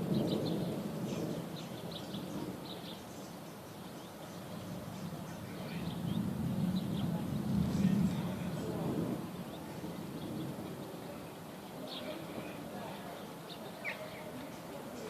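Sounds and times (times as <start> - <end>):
distant thunder rumbling: 0.0 - 3.1, 4.2 - 12.9
small birds chirping: 0.0 - 15.0.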